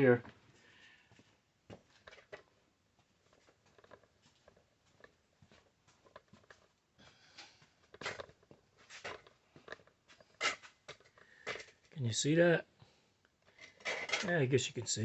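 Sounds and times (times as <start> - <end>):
small parts clicking and rustling: 1.8 - 2.6, 3.2 - 12.0, 13.2 - 14.4.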